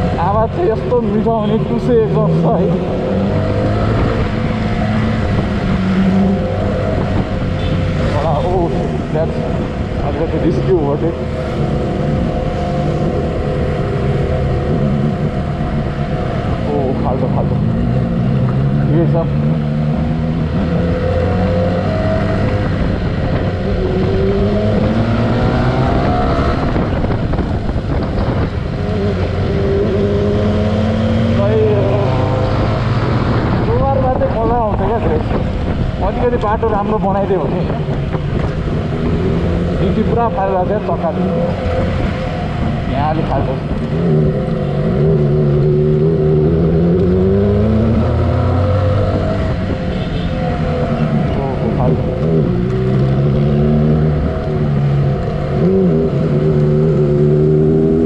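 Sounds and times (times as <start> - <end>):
motorcycle engine: 0.0 - 58.0
wind and road noise: 0.0 - 58.0.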